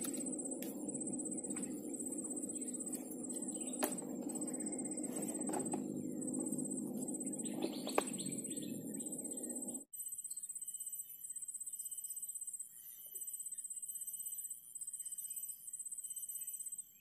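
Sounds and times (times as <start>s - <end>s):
steady low rumble: 0.0s - 9.9s
faint high pulsing whine: 0.0s - 11.0s
bird chirping: 0.0s - 17.0s.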